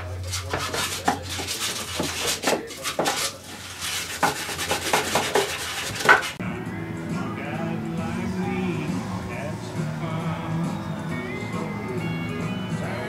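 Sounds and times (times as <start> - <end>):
hand scraping on wood: 0.0 - 6.4.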